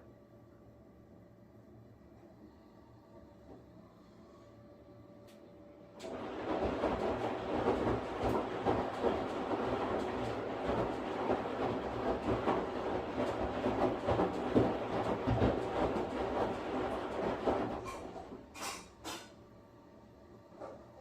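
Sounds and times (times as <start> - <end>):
washing machine running: 5.7 - 21.0.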